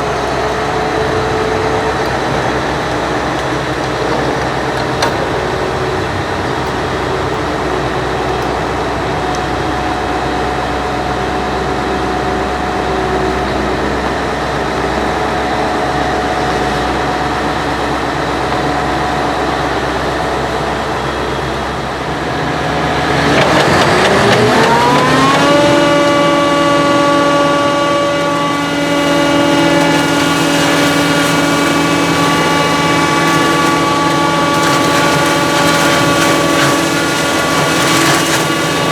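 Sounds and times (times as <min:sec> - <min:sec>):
heavy diesel engine revving: 0:21.4 - 0:38.9.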